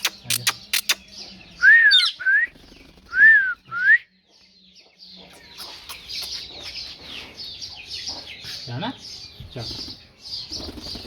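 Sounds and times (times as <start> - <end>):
parrot chirping and chattering: 0.0 - 1.4, 5.2 - 8.7.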